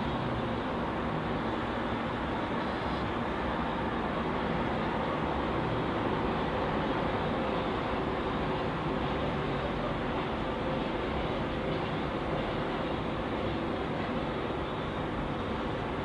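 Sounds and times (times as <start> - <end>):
outdoor background rumble: 0.0 - 16.0.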